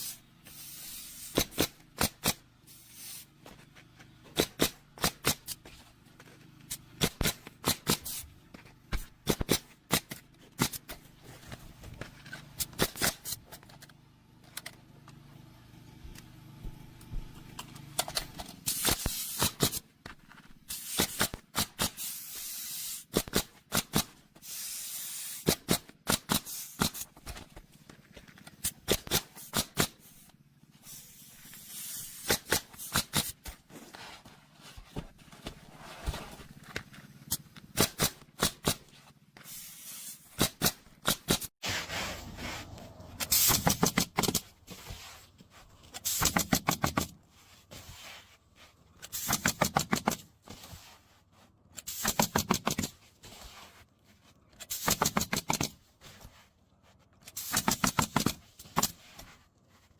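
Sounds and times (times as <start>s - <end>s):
bursts of hissing: 0.0s - 1.5s, 20.7s - 23.1s, 24.4s - 25.6s, 29.2s - 33.3s, 39.4s - 40.4s.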